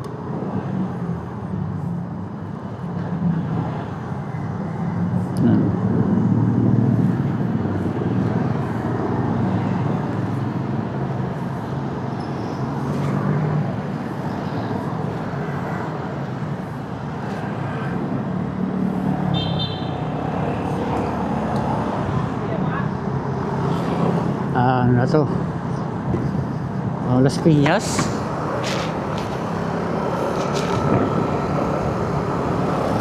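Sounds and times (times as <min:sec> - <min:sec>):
wind and road noise: 0:00.0 - 0:33.0
vehicle horn toot: 0:19.3 - 0:20.0.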